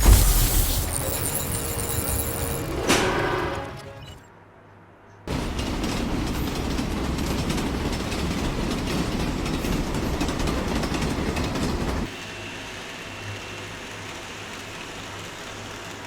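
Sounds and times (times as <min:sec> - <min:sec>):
train rumbling on rails: 0:05.3 - 0:16.0.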